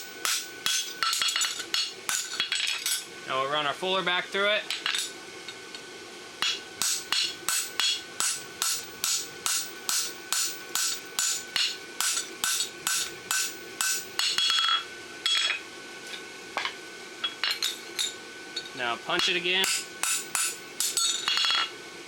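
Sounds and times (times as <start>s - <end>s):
hammer blows on anvil ringing: 0.0s - 2.4s, 6.4s - 15.6s, 19.2s - 21.7s.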